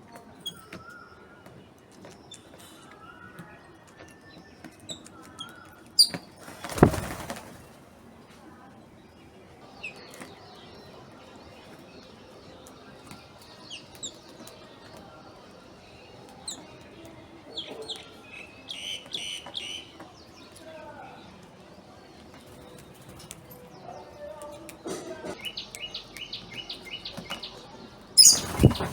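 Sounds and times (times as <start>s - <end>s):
small birds chirping: 0.0s - 28.9s
wing flaps: 6.4s - 7.8s, 28.2s - 28.9s.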